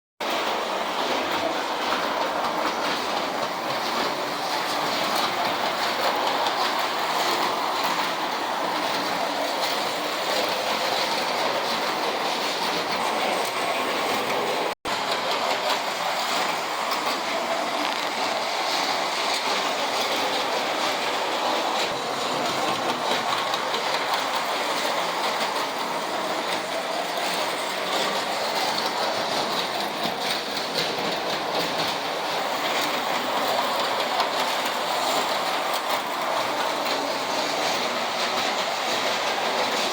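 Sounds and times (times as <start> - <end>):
toy trolleys rattling on track: 0.2 - 39.9.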